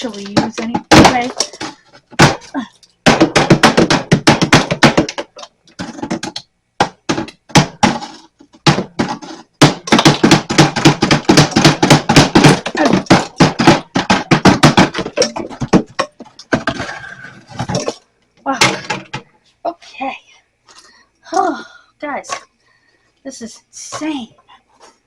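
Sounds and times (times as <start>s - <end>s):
scraper knocking on ice and metal: 0.0s - 18.0s.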